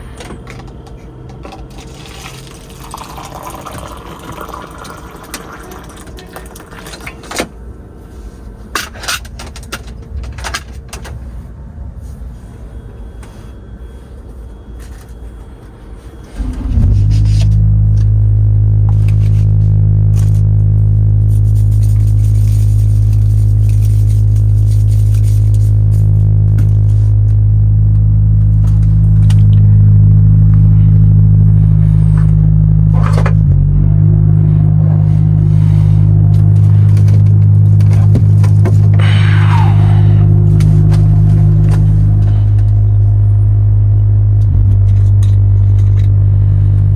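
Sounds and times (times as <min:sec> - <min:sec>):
steady low rumble: 0:15.7 - 0:46.9
truck diesel engine running: 0:16.0 - 0:46.9
short burst of noise: 0:16.2 - 0:18.0.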